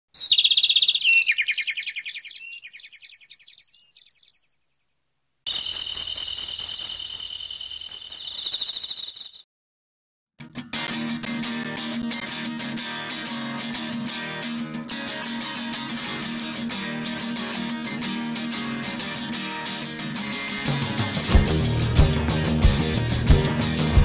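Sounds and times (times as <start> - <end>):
bird chirping: 0.1 - 9.5
insect trill: 5.5 - 9.4
strummed guitar: 10.4 - 24.0.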